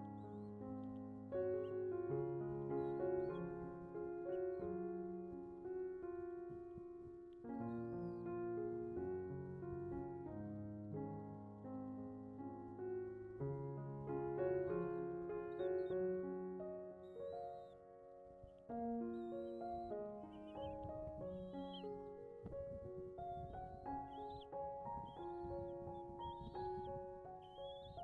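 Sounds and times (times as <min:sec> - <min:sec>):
slow piano music: 0:00.0 - 0:28.0
faint short high calls: 0:17.0 - 0:17.8, 0:18.4 - 0:28.0.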